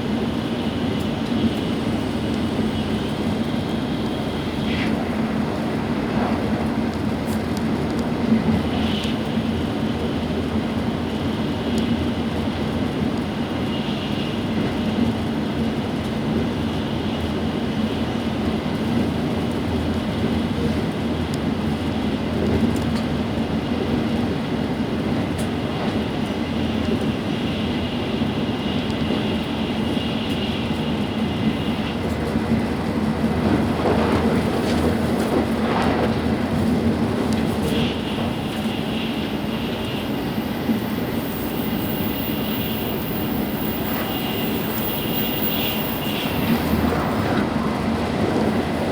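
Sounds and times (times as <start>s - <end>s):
train rumbling inside passenger car: 0.0s - 48.9s
high hiss: 38.4s - 47.2s.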